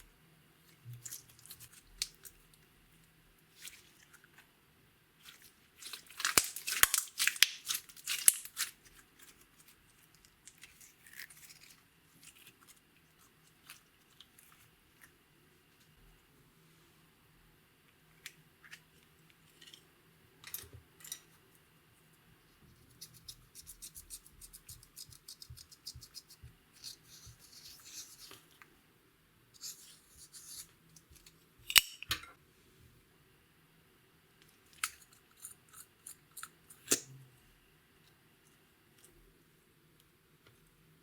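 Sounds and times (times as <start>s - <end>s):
sticky slime clicks and crackles: 5.8s - 8.7s.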